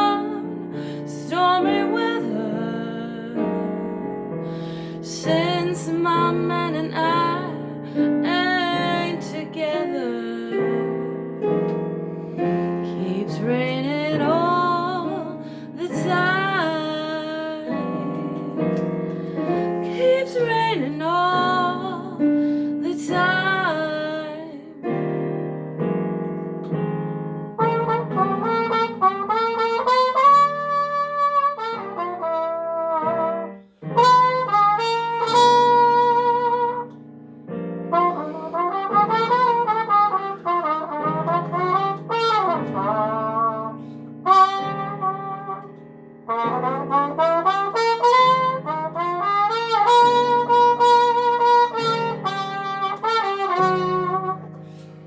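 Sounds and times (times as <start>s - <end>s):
held accompanying chords: 0.0s - 55.0s
bluesy trumpet solo: 27.6s - 37.0s, 37.8s - 55.0s.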